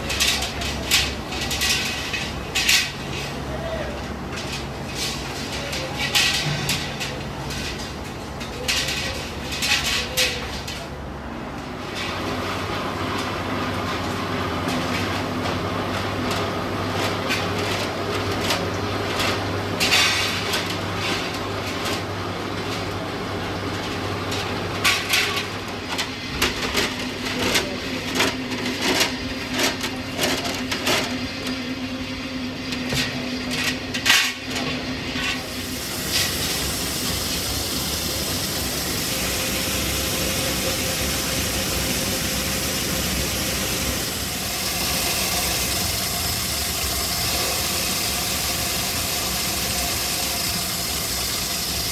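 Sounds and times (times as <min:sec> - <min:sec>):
machinery humming: 0:10.9 - 0:51.9
steady hiss: 0:35.4 - 0:51.9.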